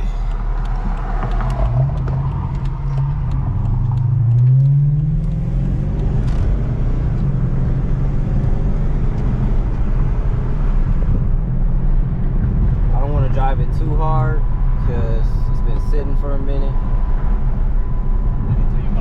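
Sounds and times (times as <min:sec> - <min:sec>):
car engine accelerating: 0:00.0 - 0:13.8.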